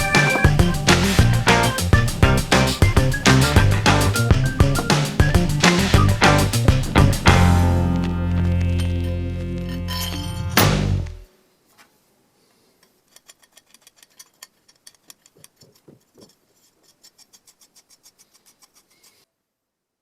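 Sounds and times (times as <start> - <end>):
rock music: 0.0 - 11.2
scrubbing bicycle part by hand: 12.8 - 19.2.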